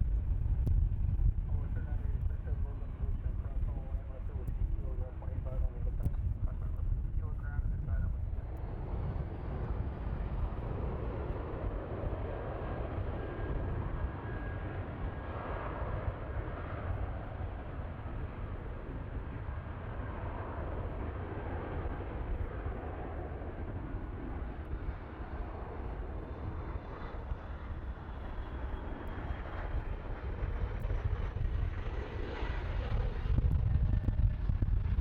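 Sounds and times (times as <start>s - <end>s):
aircraft engines rumbling: 0.0s - 35.0s.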